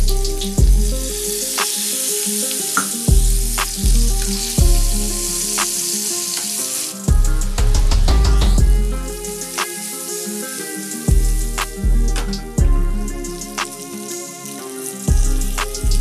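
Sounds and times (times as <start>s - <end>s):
background music with bass: 0.0s - 1.6s, 3.1s - 5.8s, 7.1s - 9.6s, 11.1s - 13.9s, 15.1s - 16.0s
chicken sizzling in a pan: 0.0s - 7.7s, 8.6s - 16.0s.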